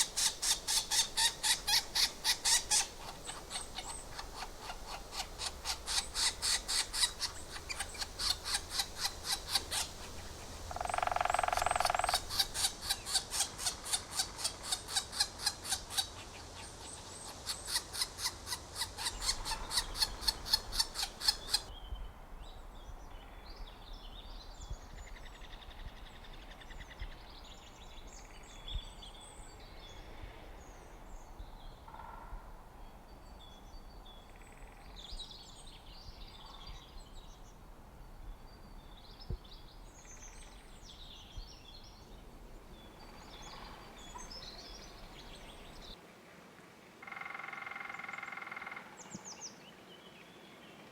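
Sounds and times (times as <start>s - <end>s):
faint bird chirps: 0.0s - 13.2s
low drawn-out bird call: 0.0s - 16.1s
woodpecker sharp calls: 0.0s - 21.7s, 47.0s - 49.0s.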